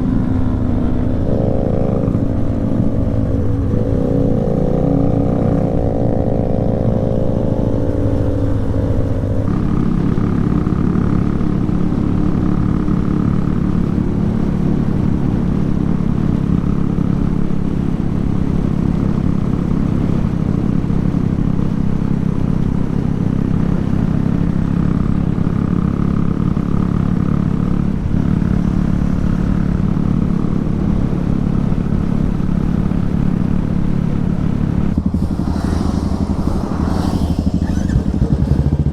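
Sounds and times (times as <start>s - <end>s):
higher engine tone: 0.0s - 15.4s, 27.8s - 38.9s
motorcycle engine running: 0.0s - 38.9s.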